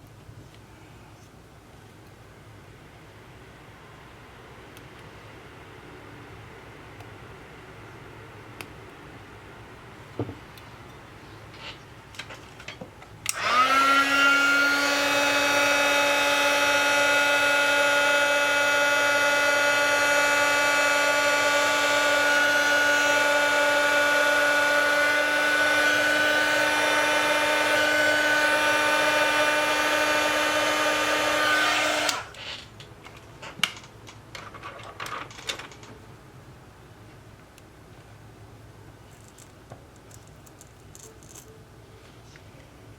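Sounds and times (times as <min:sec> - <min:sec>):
small electric motor whirring: 0:13.3 - 0:32.4.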